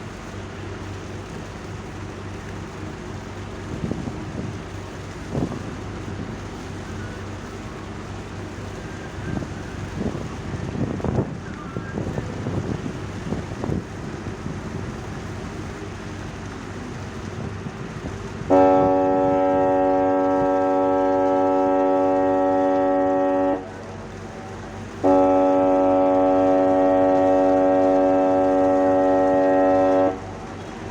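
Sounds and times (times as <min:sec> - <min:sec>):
wind: 0:00.0 - 0:30.9
ship's horn blasts: 0:18.4 - 0:30.9.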